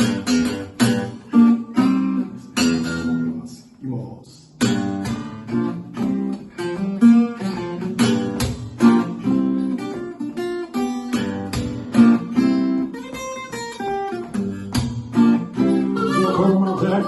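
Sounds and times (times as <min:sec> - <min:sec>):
acoustic guitar strummed chords: 0:00.0 - 0:03.5, 0:04.6 - 0:17.0.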